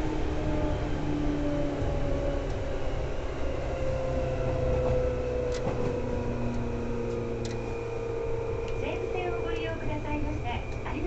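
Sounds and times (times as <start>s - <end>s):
train motor and gear hum: 0.0s - 11.0s
train wheels rumbling on rail: 0.0s - 11.0s.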